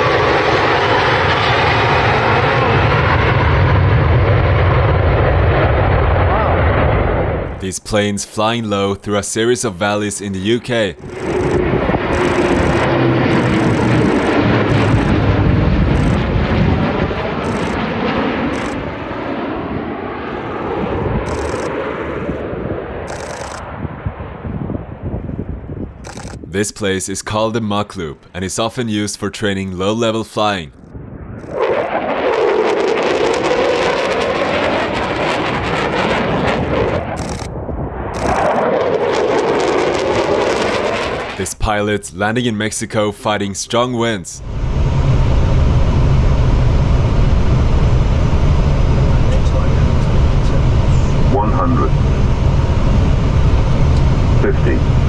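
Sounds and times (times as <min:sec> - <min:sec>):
aircraft flying low past: 0:00.0 - 0:07.5, 0:11.0 - 0:26.4, 0:30.9 - 0:41.4
wind on microphone: 0:10.9 - 0:26.6, 0:30.8 - 0:41.4.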